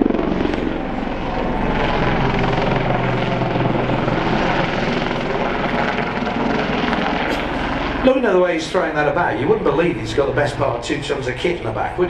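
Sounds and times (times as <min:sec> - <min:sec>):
helicopter rotor chop: 0:00.0 - 0:12.0
helicopter turbine engines: 0:00.0 - 0:12.0.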